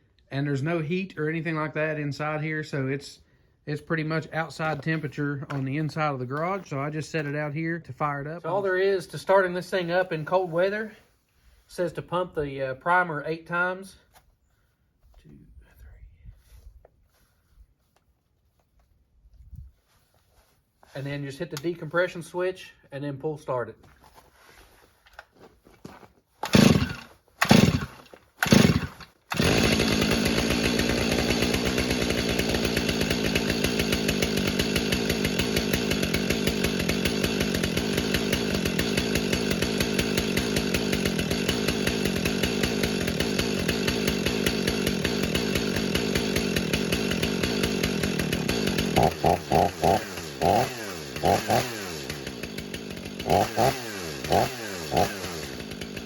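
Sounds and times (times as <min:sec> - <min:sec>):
chainsaw running and revving: 0:26.4 - 0:56.0.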